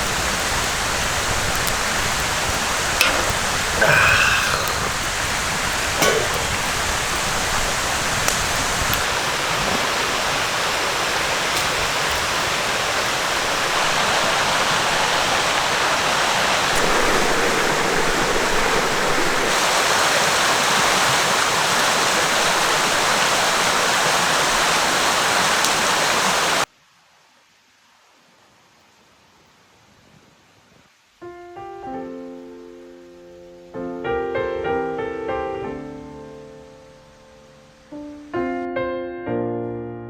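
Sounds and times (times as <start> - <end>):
stream flowing over rocks: 0.0 - 26.7.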